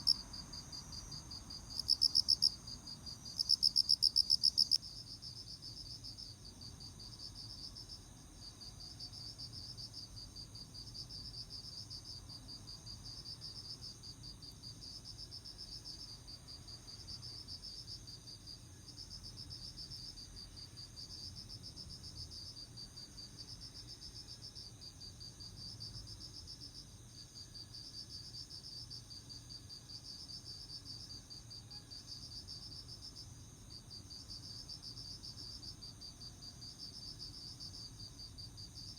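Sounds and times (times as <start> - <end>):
crickets trilling: 0.0 - 4.8.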